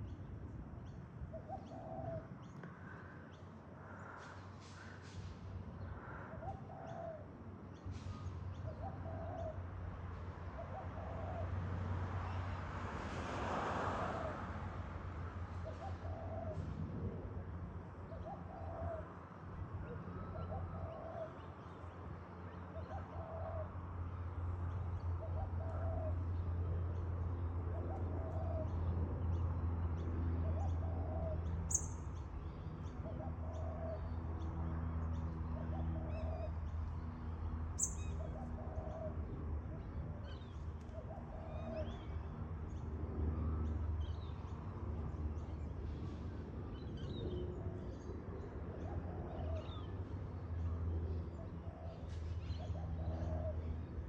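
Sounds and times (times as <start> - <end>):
small birds chirping: 31.7 - 32.9, 37.8 - 38.4.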